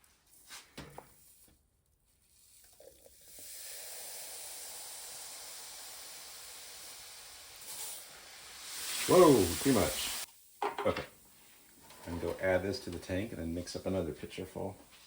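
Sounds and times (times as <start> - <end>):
solution fizzing: 2.4 - 10.3.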